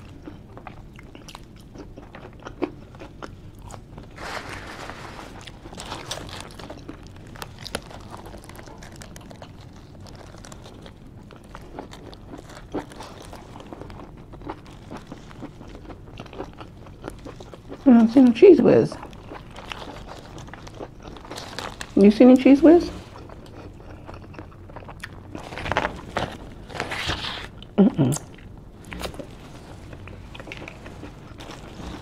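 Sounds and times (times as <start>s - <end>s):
chewing sandwich with crunches: 0.0s - 32.0s
foil wrapper crinkling: 3.7s - 18.2s, 19.0s - 23.8s, 25.0s - 27.6s, 28.8s - 32.0s.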